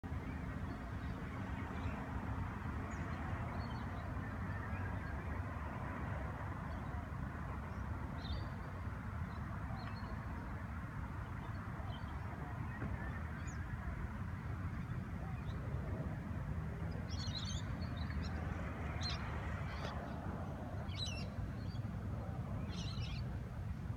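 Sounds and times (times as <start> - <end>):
outdoor background rumble and hiss: 0.0 - 23.9.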